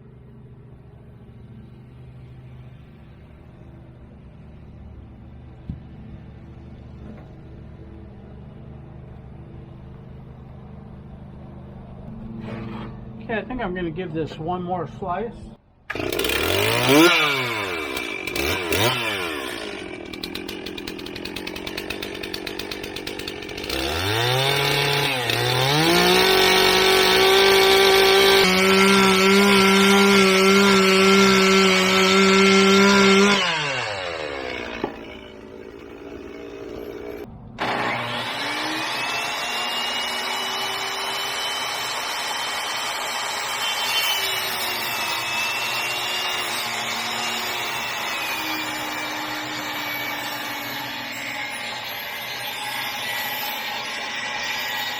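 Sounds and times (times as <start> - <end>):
chainsaw cutting a log: 15.9 - 54.9
motor with rising whine: 36.2 - 54.9.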